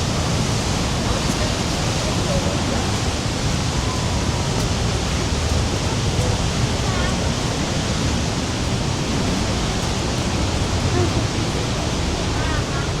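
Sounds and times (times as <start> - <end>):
faint voices: 0.0 - 13.0
waterfall rushing: 0.0 - 13.0.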